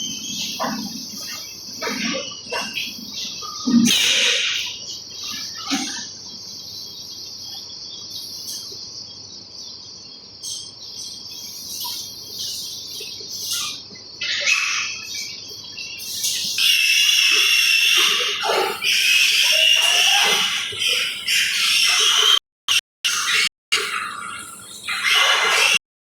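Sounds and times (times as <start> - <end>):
insect chorus drone: 0.0 - 22.4
loud shrill insect trill: 9.6 - 22.4.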